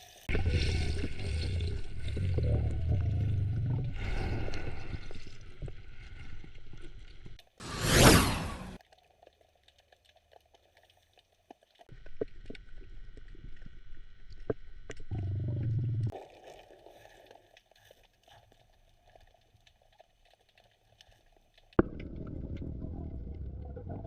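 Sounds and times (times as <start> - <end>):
muffled underwater rumbling: 0.3 - 7.4, 12.0 - 16.1, 21.8 - 24.0.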